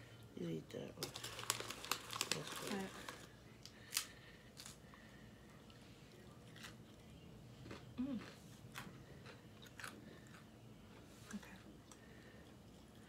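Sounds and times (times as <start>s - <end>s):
crunching hard snack: 1.0s - 4.8s.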